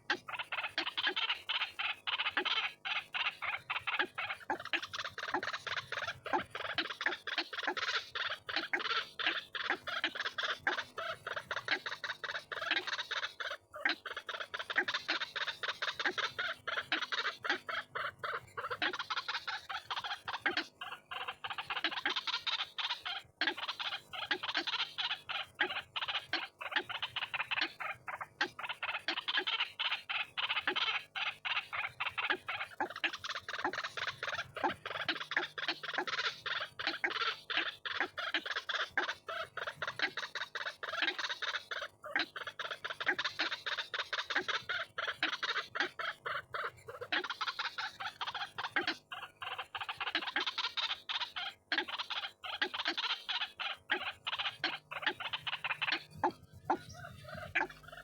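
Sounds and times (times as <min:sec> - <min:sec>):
waterhen calls from recording: 0:28.9 - 0:58.0.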